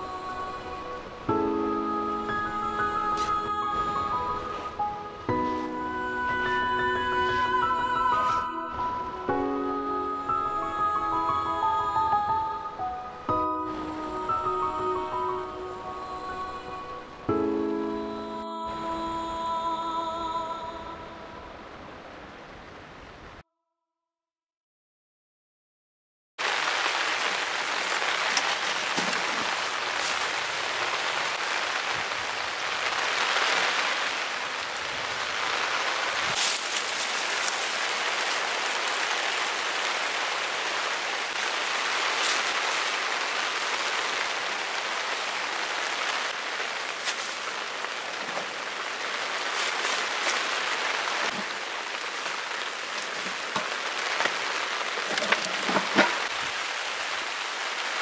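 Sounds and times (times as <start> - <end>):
heavy rain hissing: 0.0 - 9.6, 26.4 - 58.0
raindrops ticking: 26.4 - 58.0.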